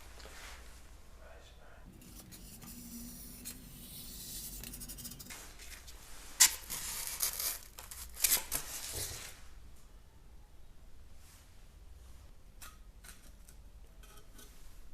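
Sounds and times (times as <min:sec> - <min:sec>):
scratchy rasping: 0:01.9 - 0:08.4.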